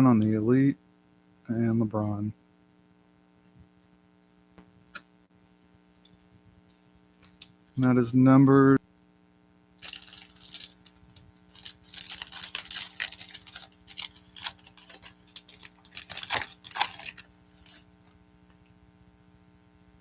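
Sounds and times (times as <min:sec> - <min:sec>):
trading cards rustling: 0:07.2 - 0:07.6, 0:09.8 - 0:18.1.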